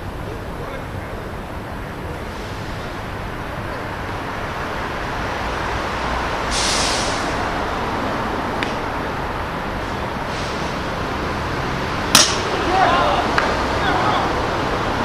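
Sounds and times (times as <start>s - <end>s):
vehicle noise: 0.0s - 15.0s
short sharp hiss: 6.5s - 7.4s.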